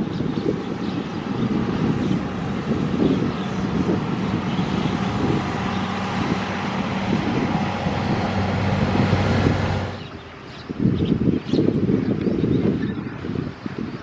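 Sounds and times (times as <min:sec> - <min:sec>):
train passing at speed: 0:00.0 - 0:10.1
low engine hum: 0:00.0 - 0:10.3.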